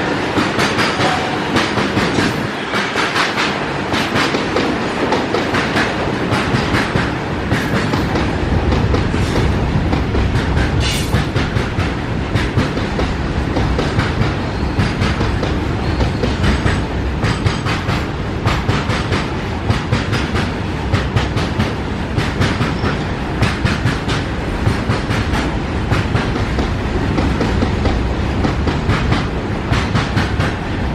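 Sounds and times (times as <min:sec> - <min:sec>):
train rumble: 0:00.0 - 0:30.9.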